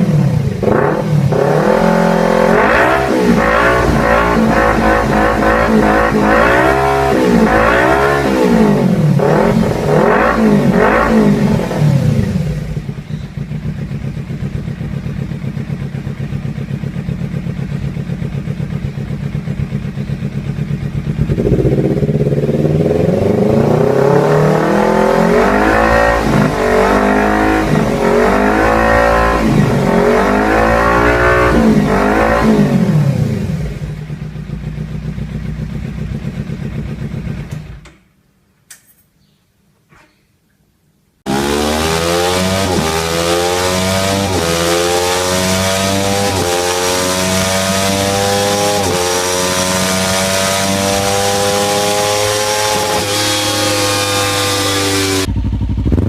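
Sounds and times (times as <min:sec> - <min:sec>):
motorcycle engine revving: 0:00.0 - 0:38.1, 0:41.2 - 0:56.0
motorcycle engine idling: 0:08.9 - 0:24.3, 0:31.6 - 0:38.2, 0:55.2 - 0:56.0.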